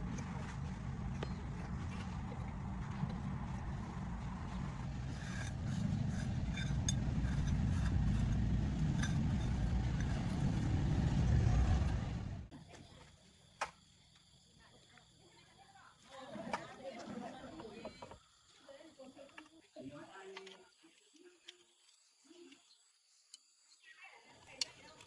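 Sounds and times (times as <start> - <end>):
vehicle engine rumbling: 0.0 - 12.5.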